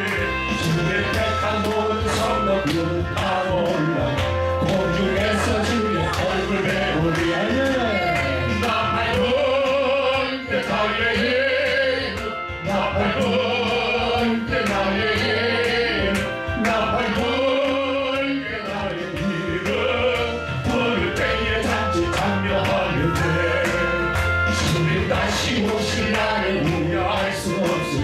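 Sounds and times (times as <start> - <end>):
steady drum beat: 0.0 - 9.5, 18.6 - 28.0
worship song singing: 0.0 - 28.0.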